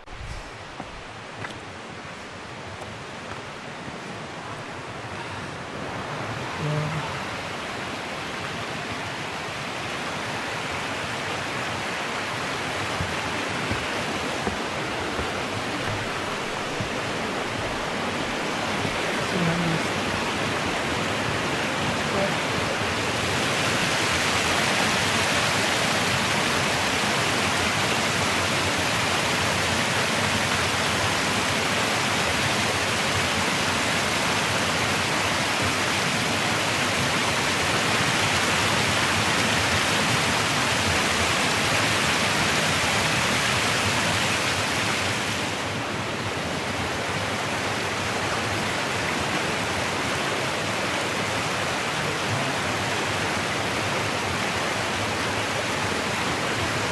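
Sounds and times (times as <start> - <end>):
mountain stream rushing: 0.0 - 56.9.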